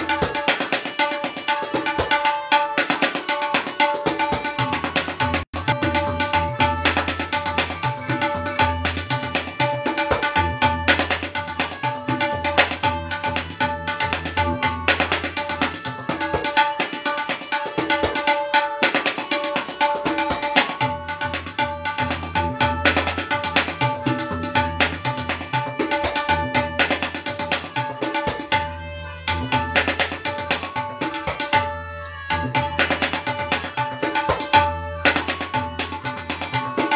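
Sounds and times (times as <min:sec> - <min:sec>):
tabla treble strokes: 0:00.0 - 0:36.9
tabla bass strokes: 0:05.2 - 0:15.7, 0:26.2 - 0:27.6, 0:28.5 - 0:30.4.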